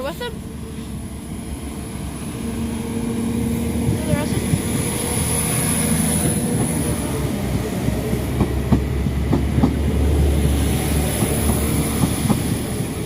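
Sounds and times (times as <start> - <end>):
train rumbling past: 0.0 - 13.0
wheels clacking over rail joints: 3.8 - 13.0.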